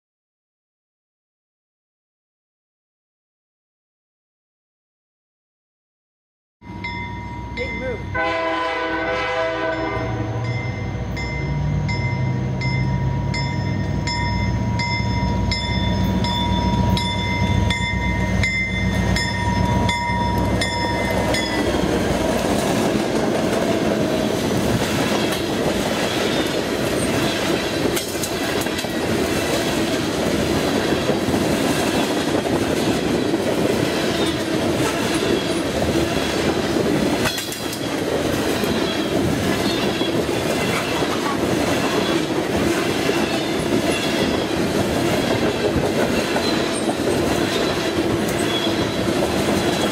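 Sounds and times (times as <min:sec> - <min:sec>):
locomotive engine rumbling: 0:06.7 - 0:49.9
train horn: 0:08.1 - 0:11.1
wheels clicking over rail joints: 0:19.3 - 0:49.9
wheel squeal: 0:46.2 - 0:49.1.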